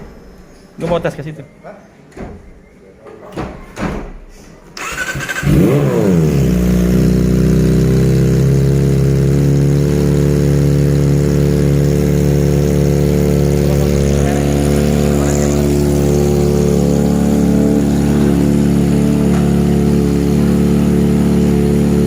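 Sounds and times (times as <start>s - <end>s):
motorcycle engine starting and idling: 4.8s - 22.0s.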